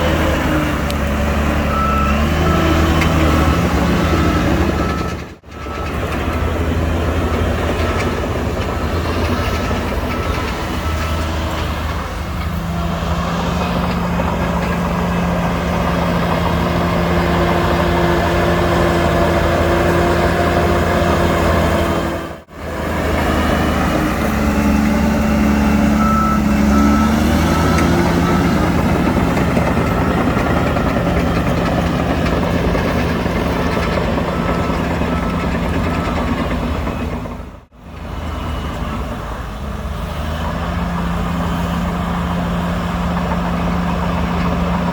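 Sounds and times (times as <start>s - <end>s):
heavy diesel engines running: 0.0s - 44.9s
reversing alarm beeping: 1.6s - 7.1s, 24.1s - 37.2s.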